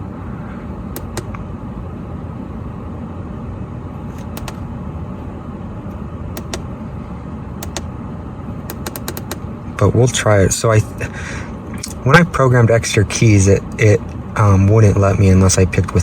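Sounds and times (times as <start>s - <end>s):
sharp button clicks: 1.0s - 1.4s, 4.1s - 4.6s, 6.4s - 6.7s, 7.6s - 7.9s, 8.7s - 9.5s.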